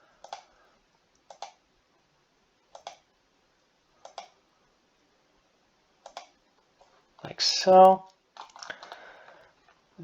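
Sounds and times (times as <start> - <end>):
computer mouse clicking: 0.2 - 0.5, 1.1 - 1.6, 2.7 - 3.1, 4.0 - 4.4, 6.0 - 6.9, 8.4 - 9.0.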